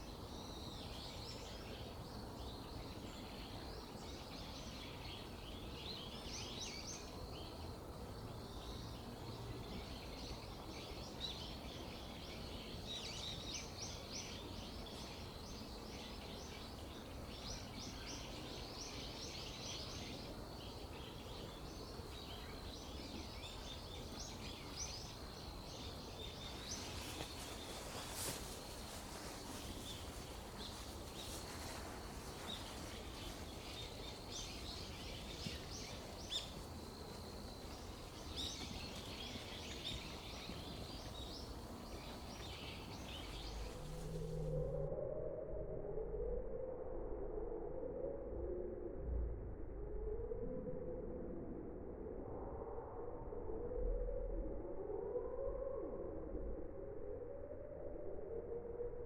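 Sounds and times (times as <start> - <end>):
small birds chirping: 11.3 - 44.4.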